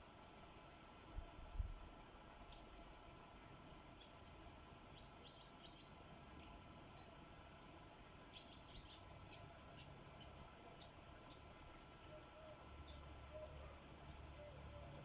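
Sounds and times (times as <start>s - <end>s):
low steady hiss: 0.0s - 15.0s
sparrows chirping: 3.9s - 4.2s, 4.9s - 15.0s.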